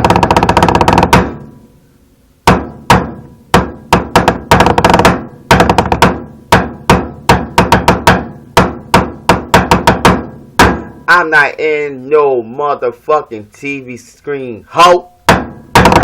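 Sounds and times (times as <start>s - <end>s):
hip-hop drum beat: 0.0s - 1.6s, 2.4s - 11.1s, 15.2s - 16.0s.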